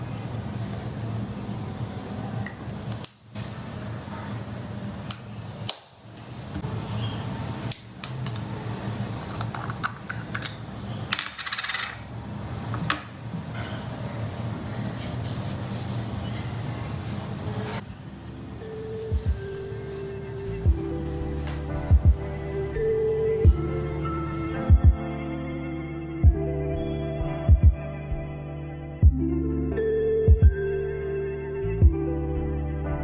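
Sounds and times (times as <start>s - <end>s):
steady low hum: 17.8s - 25.3s.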